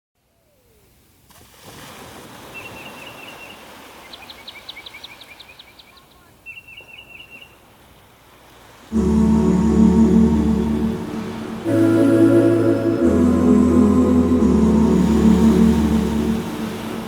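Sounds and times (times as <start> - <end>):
songbird calling: 2.6 - 7.6.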